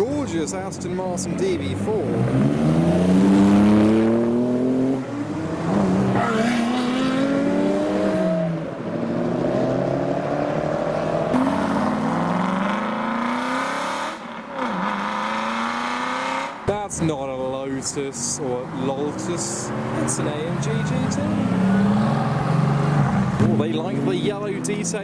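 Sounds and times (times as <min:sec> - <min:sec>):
cars accelerating past: 0:00.9 - 0:16.8, 0:18.6 - 0:25.0.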